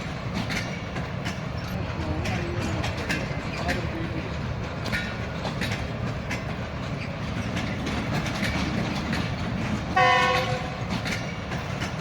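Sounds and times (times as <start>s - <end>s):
train rumble: 0.0s - 12.0s
train wheels clicking over rail joints: 0.0s - 12.0s.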